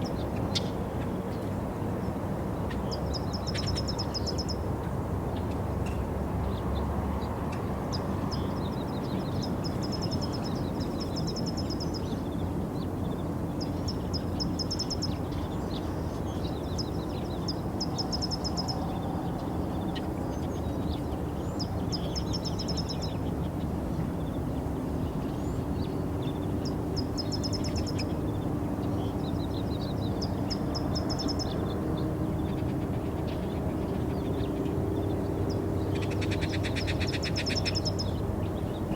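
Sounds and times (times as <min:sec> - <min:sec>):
small birds chirping: 0:25.0 - 0:38.9.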